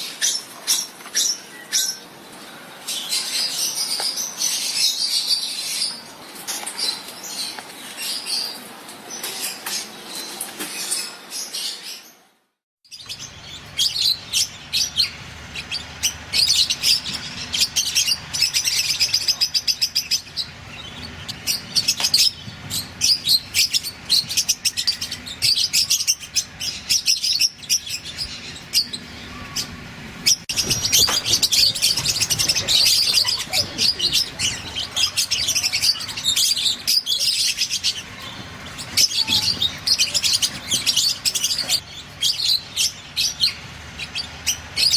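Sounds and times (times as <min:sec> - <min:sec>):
lovebirds chirping shrilly: 0:12.9 - 0:44.9.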